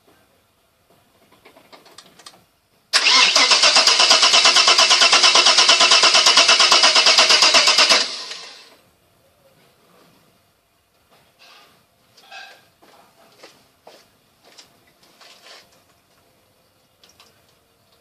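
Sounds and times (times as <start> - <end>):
engine cranking on starter motor: 3.0 - 8.8.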